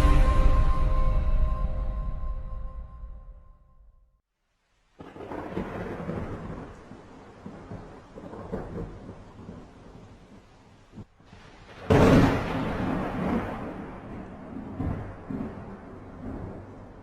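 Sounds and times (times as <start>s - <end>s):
rain: 4.3s - 17.0s
thunder rumbling: 5.0s - 17.0s.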